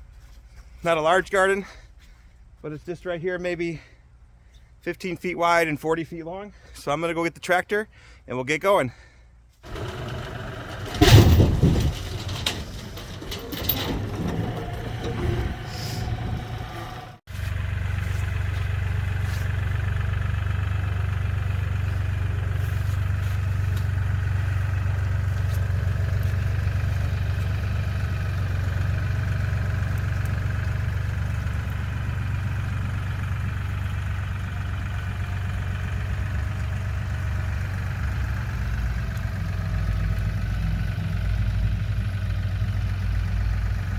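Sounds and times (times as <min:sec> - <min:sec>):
knocks and rattles: 0:09.6 - 0:17.2
tractor diesel engine running: 0:09.6 - 0:43.9.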